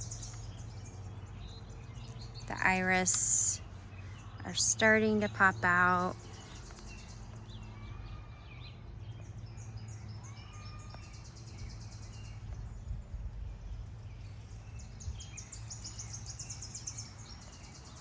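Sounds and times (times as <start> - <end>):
low rumble: 12.1 - 15.6.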